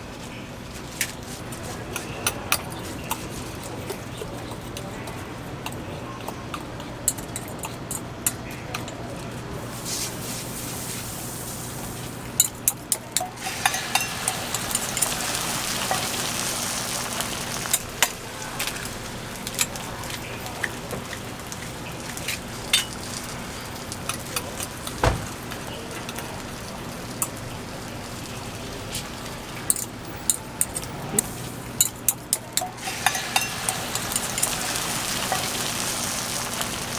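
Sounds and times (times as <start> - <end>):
food sizzling on griddle: 9.6 - 12.4, 13.2 - 30.3, 32.6 - 36.9.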